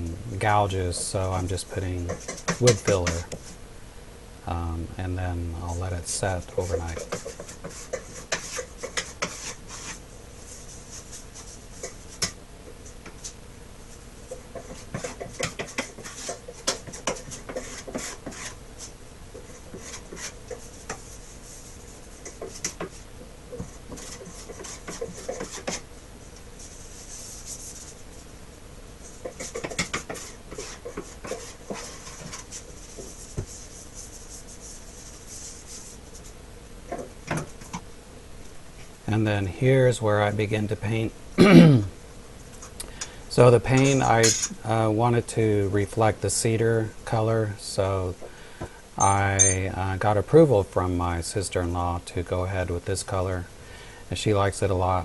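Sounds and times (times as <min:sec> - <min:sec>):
rubbing and scraping on wood: 0:00.4 - 0:03.6, 0:05.6 - 0:13.4, 0:14.2 - 0:25.9, 0:26.6 - 0:28.2, 0:29.0 - 0:37.8.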